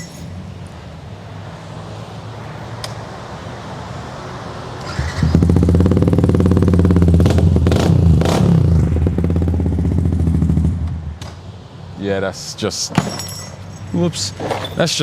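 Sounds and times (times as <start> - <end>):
motorcycle engine running: 5.2 - 11.1.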